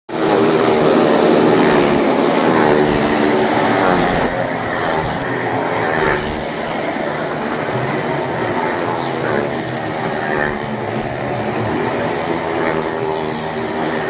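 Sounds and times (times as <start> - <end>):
motorcycle engines revving: 0.1 - 14.0.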